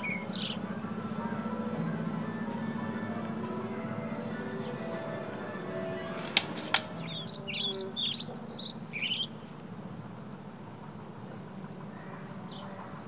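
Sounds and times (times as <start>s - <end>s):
bird chirping: 0.0s - 9.6s
low steady hum: 0.0s - 13.0s.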